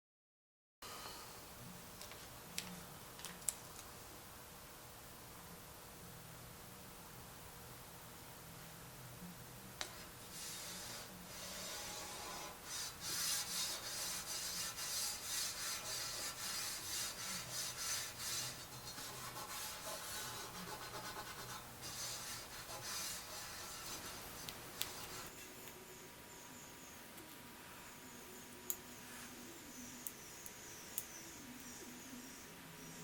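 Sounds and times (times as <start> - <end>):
hand rubbing on a surface: 9.9 - 25.4.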